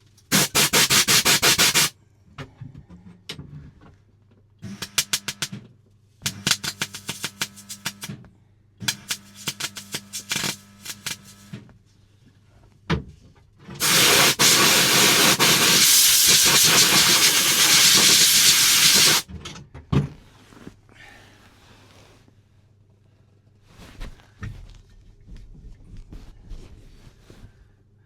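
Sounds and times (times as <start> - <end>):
air hissing: 0.3 - 1.9, 8.9 - 11.3, 13.8 - 19.2
welder humming and crackling: 0.3 - 1.9, 6.2 - 8.1, 8.8 - 11.6, 13.8 - 19.2.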